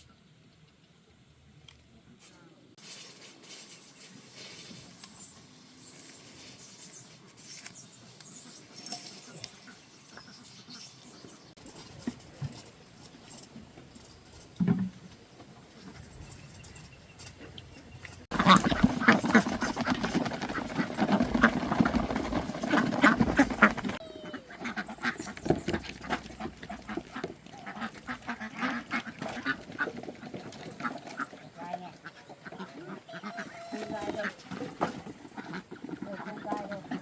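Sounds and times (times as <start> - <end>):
ducks quacking: 18.3 - 37.0.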